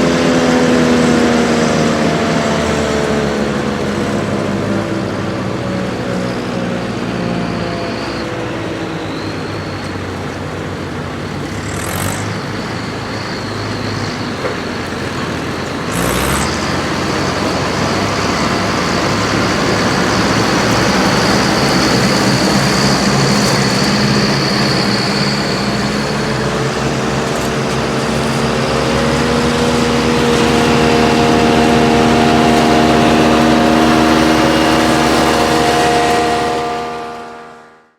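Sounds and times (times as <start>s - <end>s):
steady high whine: 0.0s - 37.9s
tractor engines under load: 0.0s - 37.9s.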